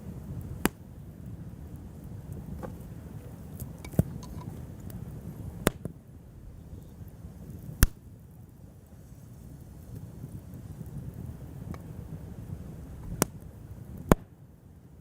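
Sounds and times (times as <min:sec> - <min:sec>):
campfire crackling: 0:00.0 - 0:15.0
low steady rumble: 0:00.0 - 0:15.0
sharp loud pops: 0:05.6 - 0:05.9, 0:07.8 - 0:08.0, 0:14.1 - 0:14.3.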